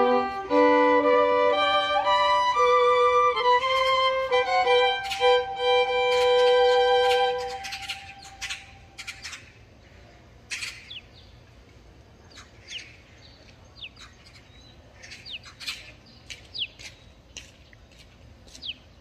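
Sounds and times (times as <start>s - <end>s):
birds chirping and whistling: 6.0s - 9.5s, 12.3s - 17.1s.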